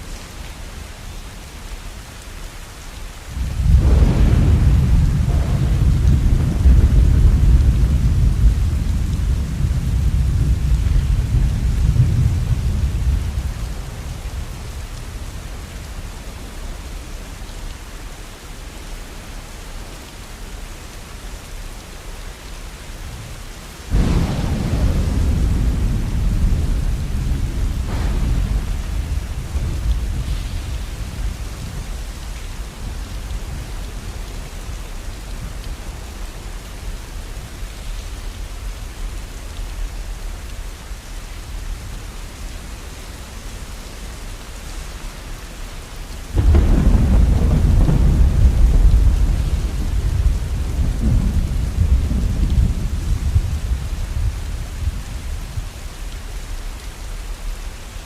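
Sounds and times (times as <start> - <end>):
steady rain: 0.0 - 58.0
rolling thunder: 3.3 - 16.1, 23.9 - 36.3, 46.2 - 55.4.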